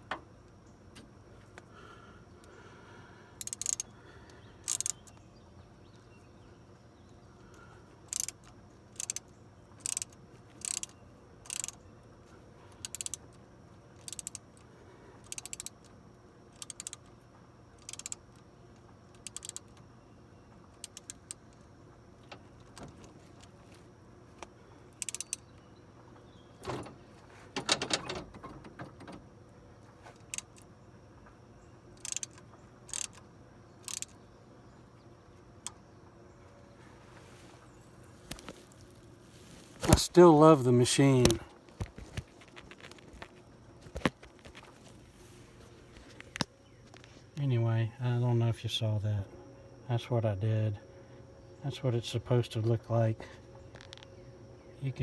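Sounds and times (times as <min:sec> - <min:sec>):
metallic clicking of hand tool: 0:03.4 - 0:03.9, 0:04.7 - 0:05.1, 0:11.5 - 0:11.8, 0:12.8 - 0:13.2, 0:14.0 - 0:14.4, 0:17.8 - 0:18.2, 0:25.0 - 0:25.4, 0:32.0 - 0:33.2, 0:33.8 - 0:34.2
metal rattle: 0:26.6 - 0:29.2.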